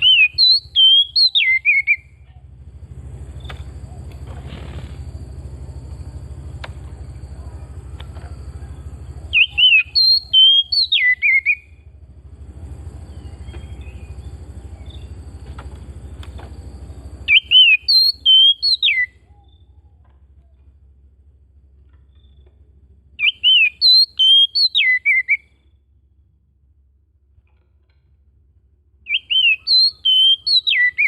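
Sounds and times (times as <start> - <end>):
bird singing whistled notes: 0.0 - 2.2, 8.6 - 11.8, 12.9 - 20.0, 23.2 - 25.6, 29.0 - 31.0
steady low hum: 0.0 - 31.0.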